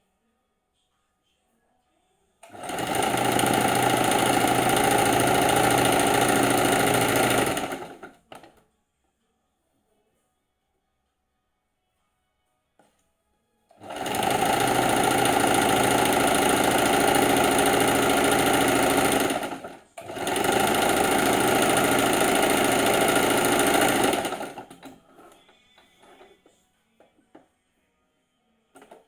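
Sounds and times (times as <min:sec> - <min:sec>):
sewing machine running: 0:02.4 - 0:08.5, 0:13.7 - 0:25.4, 0:26.0 - 0:26.3.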